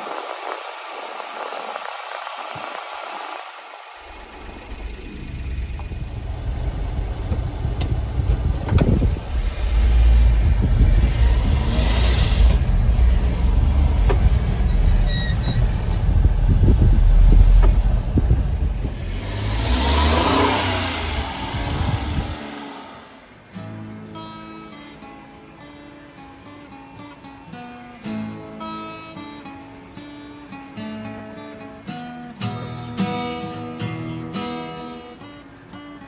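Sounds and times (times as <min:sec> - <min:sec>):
small truck engine revving: 0:00.4 - 0:23.4.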